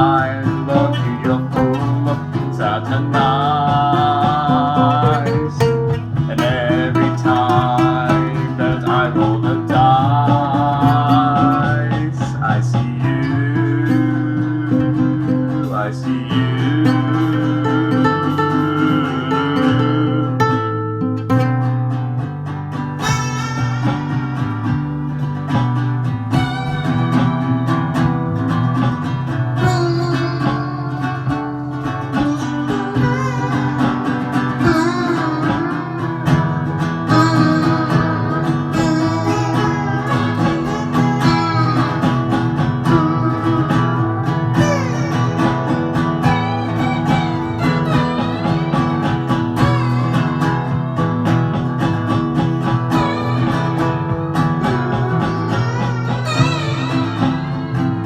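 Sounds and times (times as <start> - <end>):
bending guitar lead line: 0.0 - 58.0
plucked and strummed guitar: 0.0 - 58.0.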